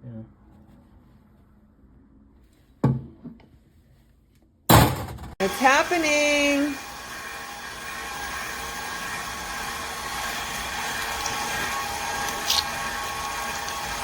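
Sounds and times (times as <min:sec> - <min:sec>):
stand mixer motor whining: 0:05.4 - 0:14.0
meat squishing through grinder: 0:06.8 - 0:14.0.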